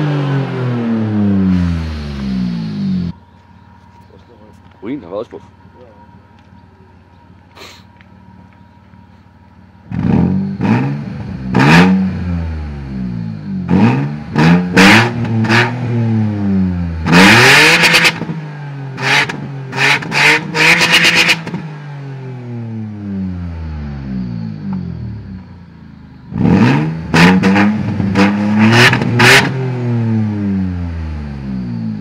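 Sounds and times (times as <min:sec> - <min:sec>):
car engine revving: 0:00.0 - 0:32.0
engine idling: 0:01.5 - 0:10.0, 0:22.8 - 0:26.4.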